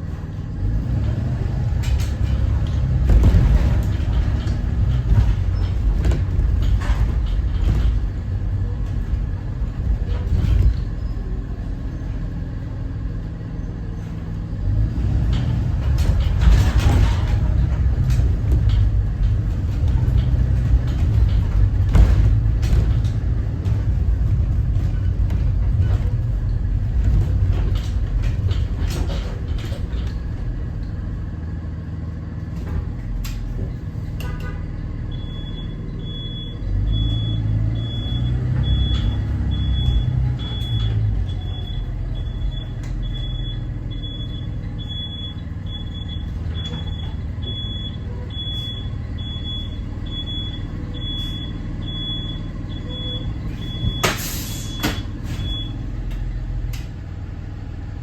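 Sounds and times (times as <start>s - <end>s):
diesel bus engine rumble: 0.0s - 58.0s
high-pitched backup alarm beeping: 35.1s - 55.8s.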